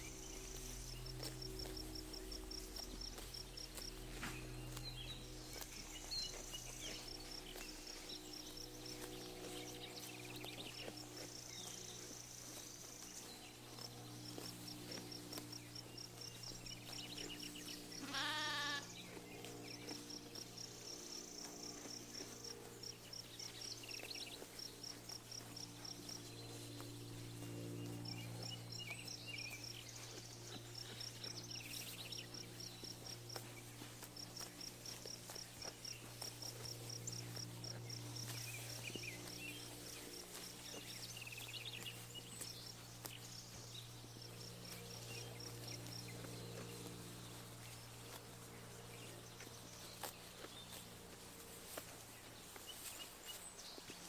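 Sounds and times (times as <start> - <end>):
birds chirping: 0.0 - 54.0
sheep bleating: 18.0 - 19.0.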